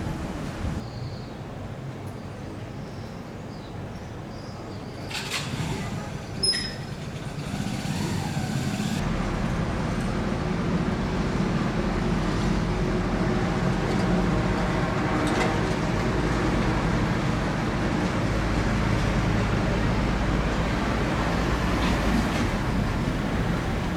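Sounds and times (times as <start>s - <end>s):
vehicle engine rumbling: 0.0s - 0.8s, 18.4s - 23.9s
sharp click with high squeak: 6.4s - 6.9s.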